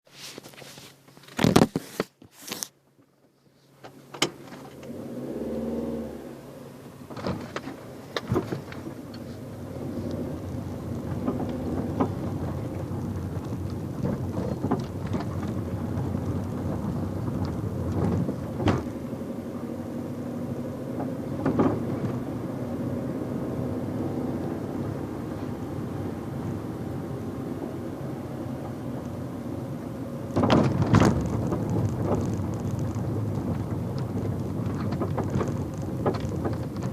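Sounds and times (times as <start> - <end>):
clicks and knocks from car: 1.1 - 2.3, 7.1 - 19.0, 21.0 - 22.3, 30.3 - 36.9
car engine droning: 3.6 - 36.9.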